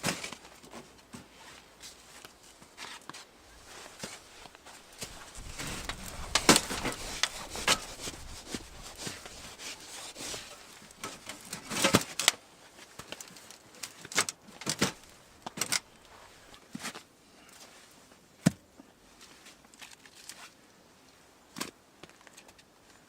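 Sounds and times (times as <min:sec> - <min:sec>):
sticks rubbing and handling: 0:01.4 - 0:11.7
wooden knocks and cracks: 0:04.0 - 0:12.4.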